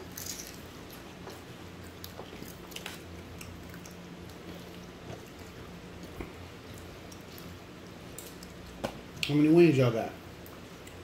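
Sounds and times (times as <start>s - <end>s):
children chewing: 0.0s - 8.7s
steady low hum: 0.0s - 11.0s.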